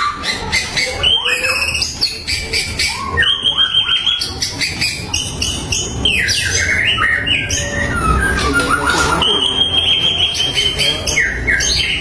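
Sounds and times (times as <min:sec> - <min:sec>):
bird singing whistling song: 0:00.0 - 0:12.0.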